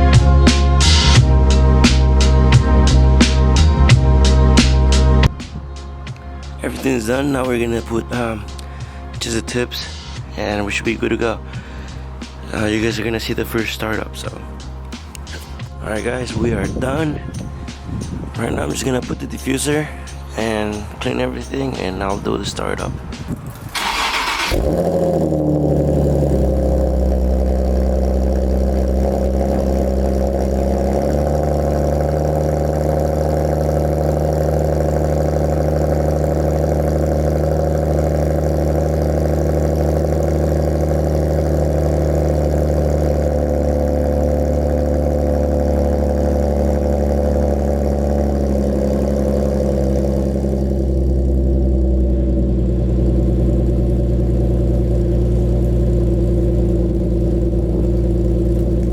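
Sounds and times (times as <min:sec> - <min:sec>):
car engine idling: 0:00.0 - 0:58.9.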